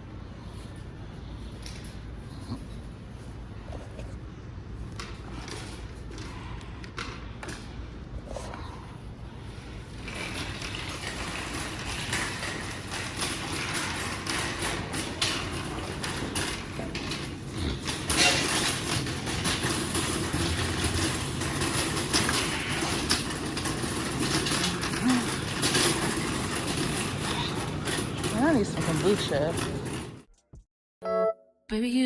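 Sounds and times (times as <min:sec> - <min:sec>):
small clicks and clatters: 0:09.8 - 0:30.3.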